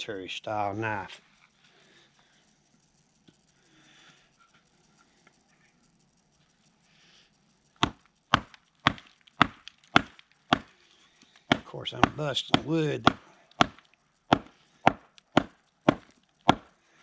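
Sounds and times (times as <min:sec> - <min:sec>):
knife hammered into wood: 0:07.8 - 0:10.7, 0:11.5 - 0:16.7.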